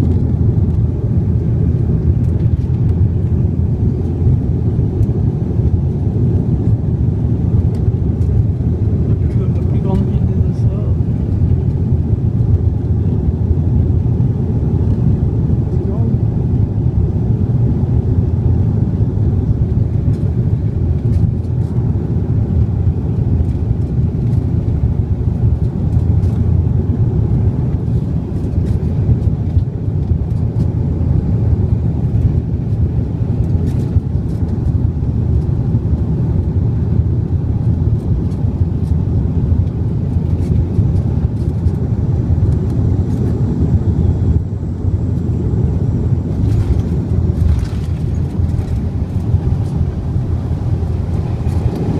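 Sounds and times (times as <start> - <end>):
airliner engines rumbling: 0.0 - 51.9
rushing air: 40.0 - 51.9.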